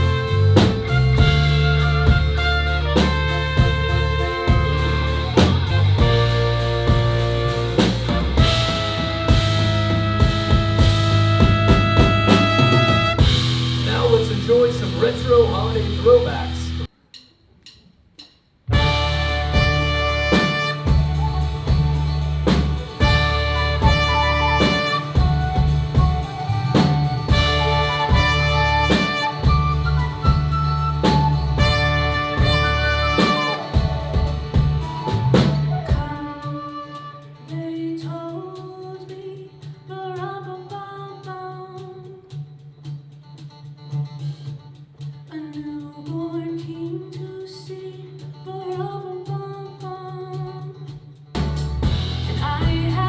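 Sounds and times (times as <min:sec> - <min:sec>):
saxophone: 0:00.0 - 0:13.7, 0:18.7 - 0:38.0
brass: 0:00.0 - 0:14.9, 0:18.7 - 0:36.0
bass line: 0:00.0 - 0:16.9, 0:18.7 - 0:36.3, 0:51.4 - 0:53.0
drum kit: 0:00.0 - 0:40.8, 0:41.8 - 0:53.0.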